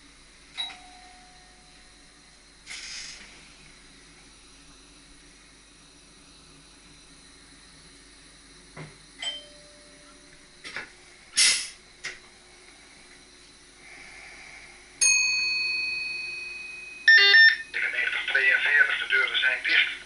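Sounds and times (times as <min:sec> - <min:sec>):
loud air hiss: 0:02.6 - 0:03.7, 0:11.3 - 0:11.9, 0:13.8 - 0:14.8
struck chime ringing: 0:15.0 - 0:17.6.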